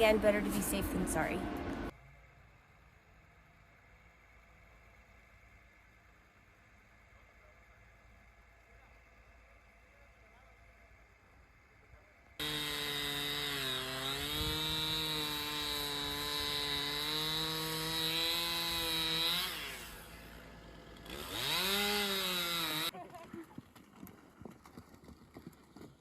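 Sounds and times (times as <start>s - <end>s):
chainsaw cutting a tree: 12.4s - 23.0s.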